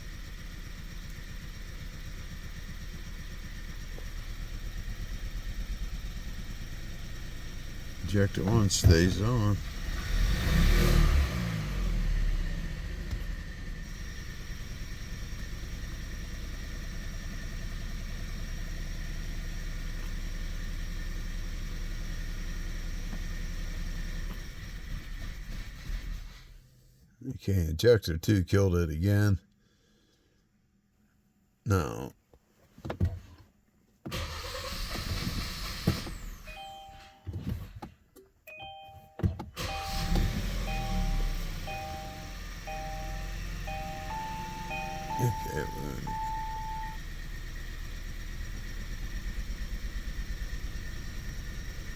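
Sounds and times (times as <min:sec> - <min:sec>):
misfiring engine idling: 0:00.0 - 0:10.3, 0:39.7 - 0:51.9
car warning chime two-tone beeps: 0:08.1 - 0:09.6, 0:36.3 - 0:37.6, 0:38.5 - 0:47.1.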